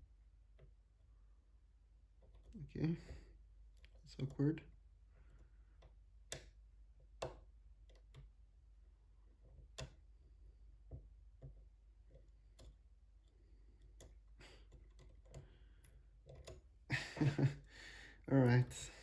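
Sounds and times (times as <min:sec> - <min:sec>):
lock pick clicking on pins: 0:05.8 - 0:08.3.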